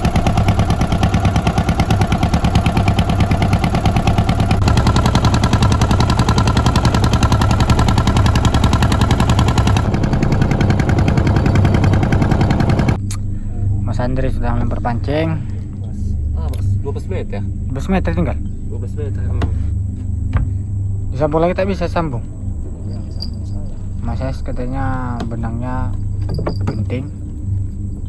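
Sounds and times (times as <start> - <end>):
small boat engine running: 0.0 - 13.1.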